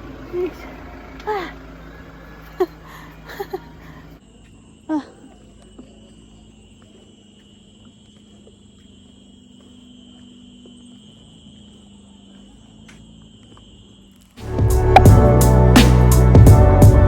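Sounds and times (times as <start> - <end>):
high-pitched hum: 14.4 - 17.0
loud music: 14.4 - 17.0.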